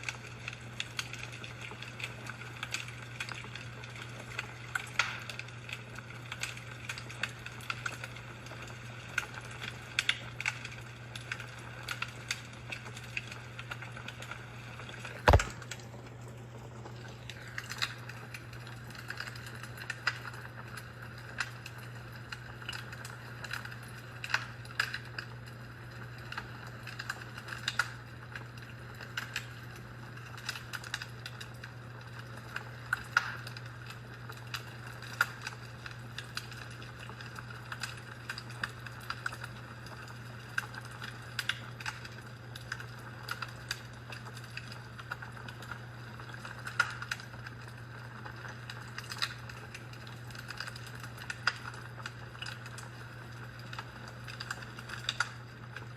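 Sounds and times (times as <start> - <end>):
fireplace crackling and popping: 0.0 - 55.9.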